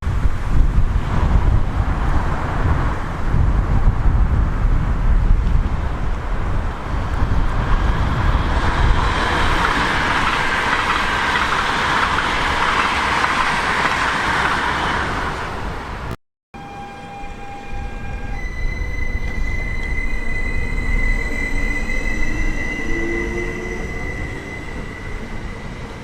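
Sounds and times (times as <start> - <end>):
wind rumble on microphone: 0.0 - 16.2
train rolling on rails: 0.0 - 26.0.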